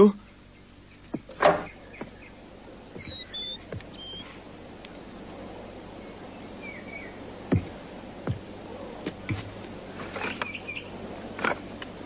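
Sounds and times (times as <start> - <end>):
bird chirps: 0.2 - 4.4, 5.4 - 7.2, 10.2 - 10.9
sharp thump: 1.1 - 2.1.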